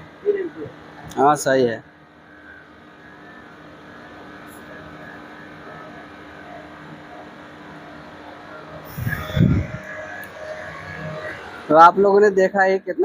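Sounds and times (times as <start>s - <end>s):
air conditioner running: 0.0s - 13.0s.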